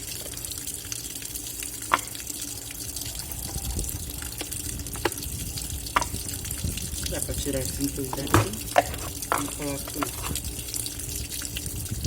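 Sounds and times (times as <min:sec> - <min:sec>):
water running into a tub: 0:00.0 - 0:12.0
sharp plastic knocks: 0:08.2 - 0:09.5.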